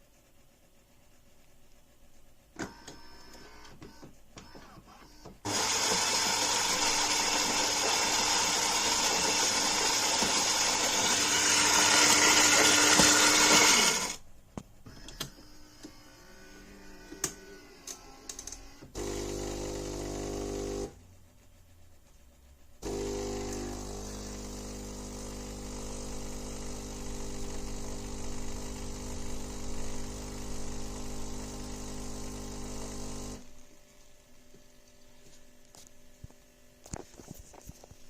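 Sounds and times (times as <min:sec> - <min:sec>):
espresso machine running: 0:05.5 - 0:14.2, 0:19.0 - 0:21.0, 0:22.8 - 0:33.5.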